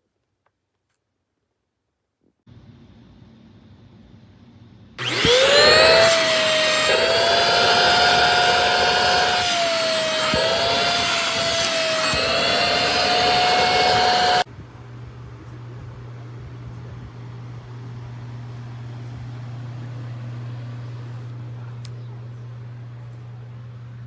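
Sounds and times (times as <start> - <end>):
vacuum cleaner motor whine: 5.0 - 14.5.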